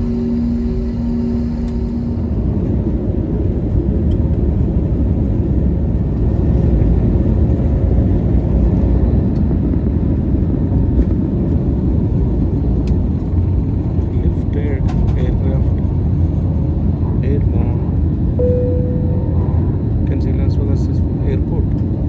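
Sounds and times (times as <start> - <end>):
hum with pulsing tone: 0.0 - 5.8, 18.4 - 20.0
jet engines at takeoff power: 0.0 - 22.0.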